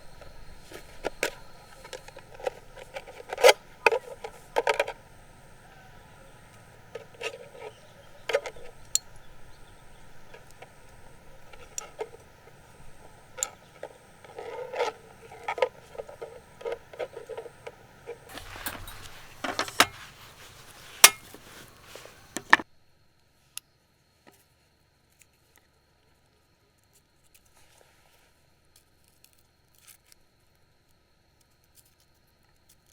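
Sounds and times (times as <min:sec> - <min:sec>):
faint ticks: 0:00.0 - 0:22.6
objects being handled: 0:00.0 - 0:22.6.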